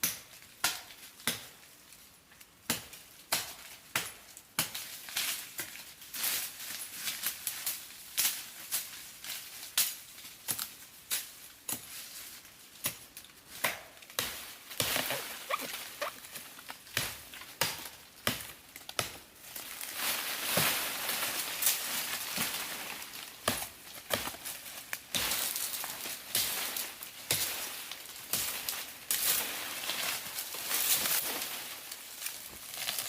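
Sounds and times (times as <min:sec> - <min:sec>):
rustling or scraping: 0:14.3 - 0:17.6, 0:19.5 - 0:23.3, 0:28.5 - 0:33.0.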